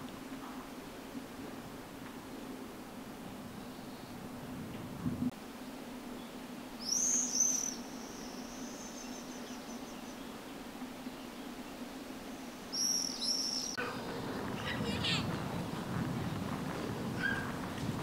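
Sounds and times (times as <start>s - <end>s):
small bird calling: 6.2s - 10.4s, 12.4s - 15.3s.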